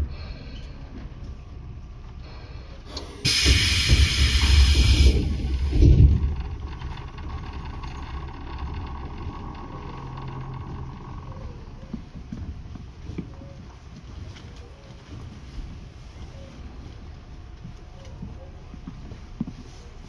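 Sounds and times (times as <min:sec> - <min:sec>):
train running rumble: 0:00.0 - 0:20.0
sudden loud hiss: 0:02.9 - 0:07.1.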